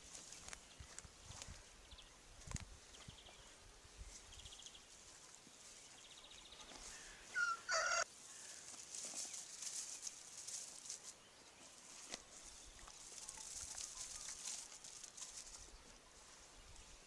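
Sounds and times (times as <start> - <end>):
chicken harsh call: 7.0 - 8.1
faint clicks and rustles: 8.5 - 16.0.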